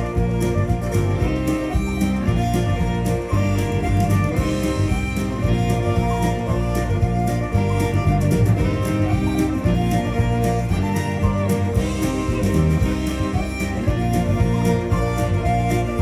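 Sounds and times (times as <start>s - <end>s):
folk-rock instrumental music: 0.0s - 16.0s.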